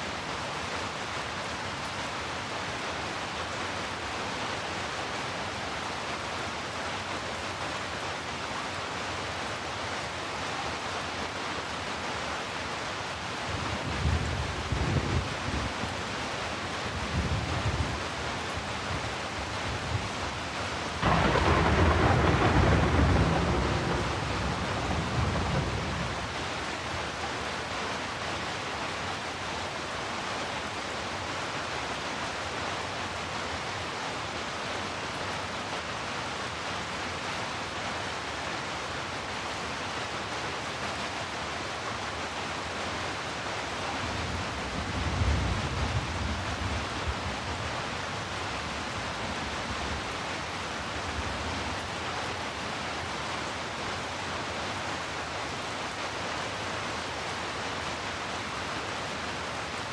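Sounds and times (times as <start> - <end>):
heavy rain falling: 0.0 - 59.9
thunder rumbling: 21.0 - 26.4.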